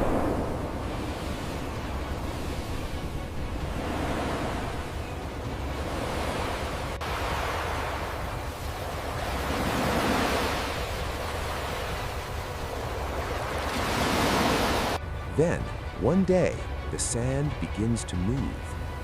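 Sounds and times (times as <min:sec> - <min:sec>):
surf washing on a beach: 0:00.0 - 0:15.0.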